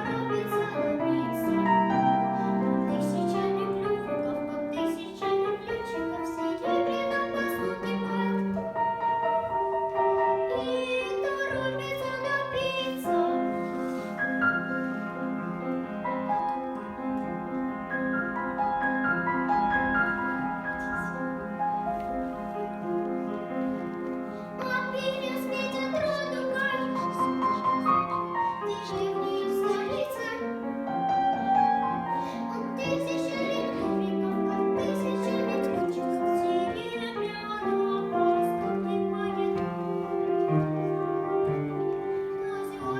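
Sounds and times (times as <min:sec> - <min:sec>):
girl singing: 0:00.0 - 0:15.0, 0:20.1 - 0:21.4, 0:24.3 - 0:42.9
piano accompaniment: 0:00.0 - 0:42.9.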